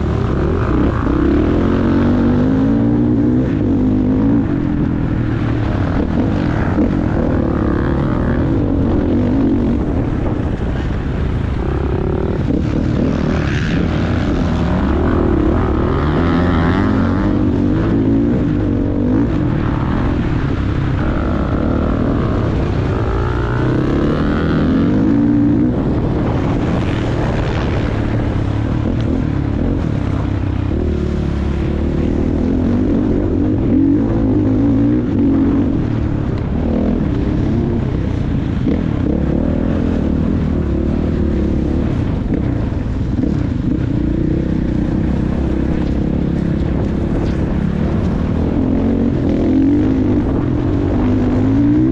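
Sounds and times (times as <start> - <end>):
motocross bike engine revving: 0.0 - 51.9.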